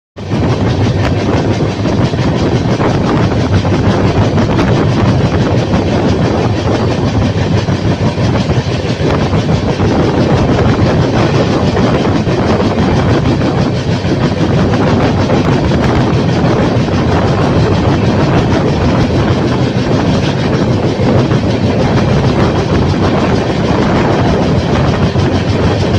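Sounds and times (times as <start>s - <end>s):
train rumbling on rails: 0.2s - 25.9s.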